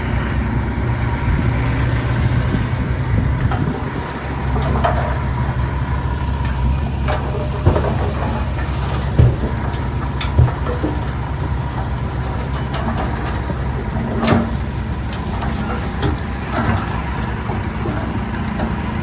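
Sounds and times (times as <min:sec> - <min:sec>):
bulldozer diesel engine droning: 0:00.0 - 0:19.0
short knocks: 0:03.2 - 0:14.6.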